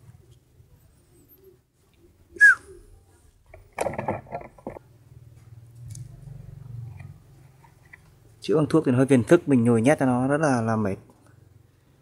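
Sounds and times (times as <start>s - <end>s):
faint low hum: 0.0s - 10.0s
short sharp high chirp: 2.4s - 2.8s.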